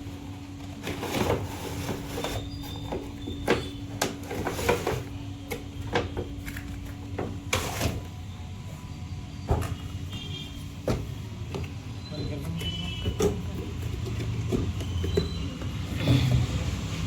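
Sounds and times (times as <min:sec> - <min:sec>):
hard plastic knocks and clatters: 0:09.5 - 0:16.6.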